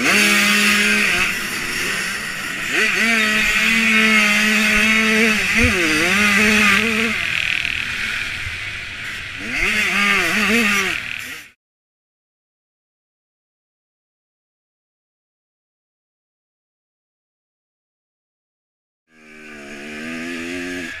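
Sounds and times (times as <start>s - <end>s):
dirt bike engine revving: 0.0s - 11.6s, 19.1s - 21.0s.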